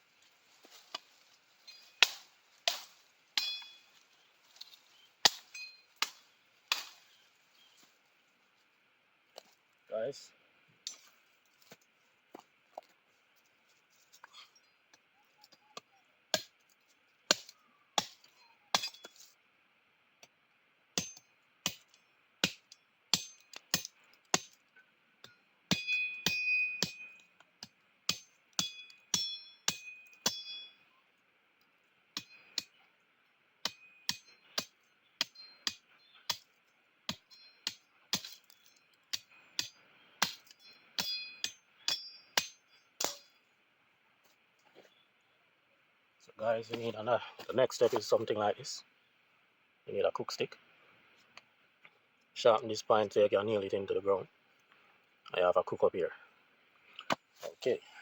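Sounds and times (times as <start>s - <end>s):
metal tool striking with ring: 3.4s - 3.8s, 5.3s - 5.9s, 21.0s - 21.3s, 22.4s - 23.5s, 25.7s - 27.2s, 28.1s - 30.8s, 33.7s - 35.8s, 37.1s - 37.8s, 39.6s - 43.4s.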